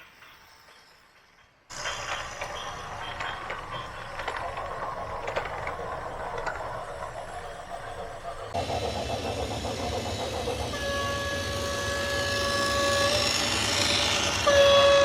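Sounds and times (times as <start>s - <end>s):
small electric motors whirring: 8.5s - 15.0s.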